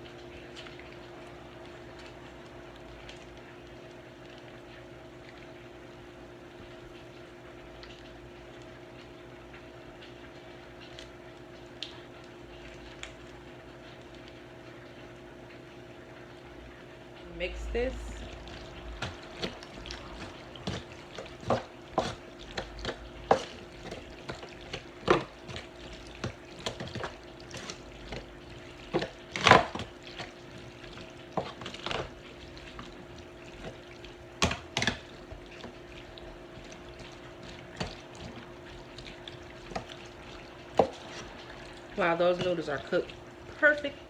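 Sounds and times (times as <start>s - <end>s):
utensil stirring macaroni in sauce: 17.3s - 44.0s.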